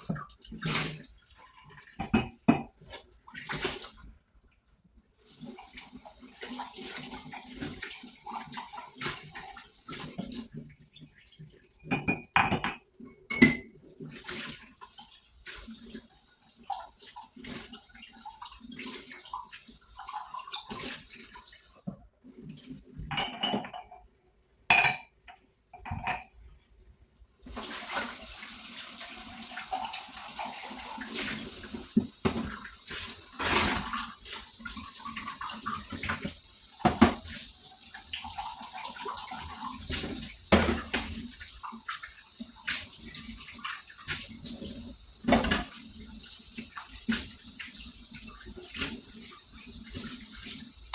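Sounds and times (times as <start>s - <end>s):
running tap water: 5.1s - 23.9s, 27.3s - 50.9s
dishes and cutlery clinking: 11.9s - 13.8s, 23.1s - 24.0s.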